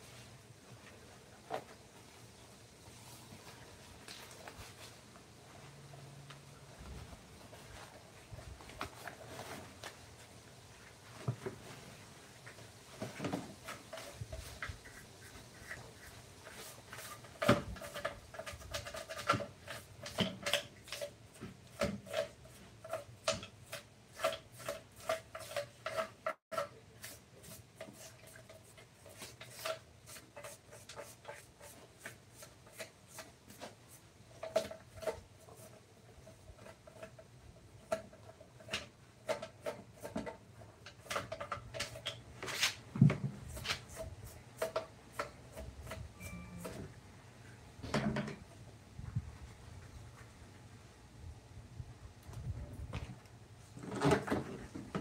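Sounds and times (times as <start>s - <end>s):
hand tool scraping wood: 13.3s - 42.8s.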